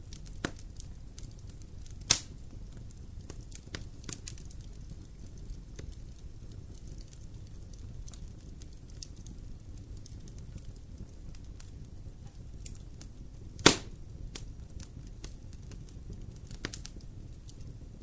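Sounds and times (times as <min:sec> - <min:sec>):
low fire rumble: 0:00.0 - 0:18.0
wood fire crackling: 0:00.0 - 0:18.0
loud fire pop: 0:02.1 - 0:02.4, 0:13.6 - 0:14.0.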